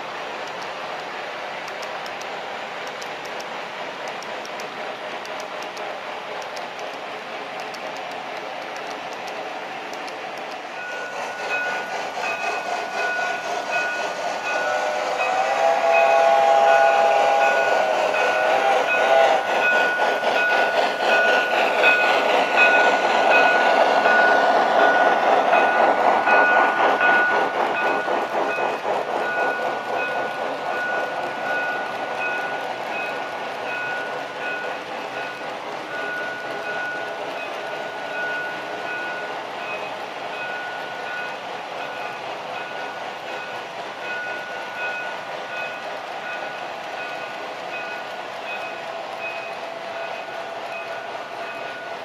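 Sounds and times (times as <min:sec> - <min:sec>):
model steam locomotive clatter: 0:00.0 - 0:52.0
locomotive whistle: 0:14.5 - 0:19.7.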